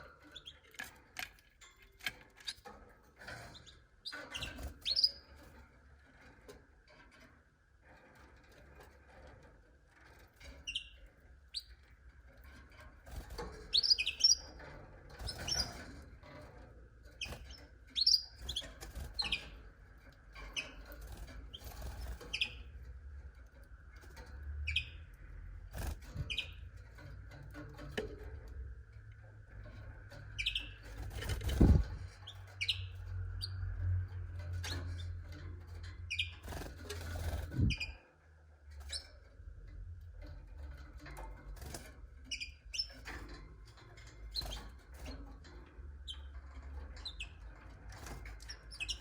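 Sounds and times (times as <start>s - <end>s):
canaries chirping: 0.0s - 7.0s, 8.1s - 38.0s, 38.7s - 49.0s.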